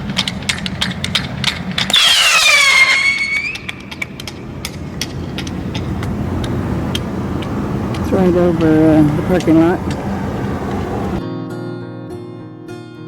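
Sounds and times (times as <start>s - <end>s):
shrill falling whistle: 1.9s - 3.8s.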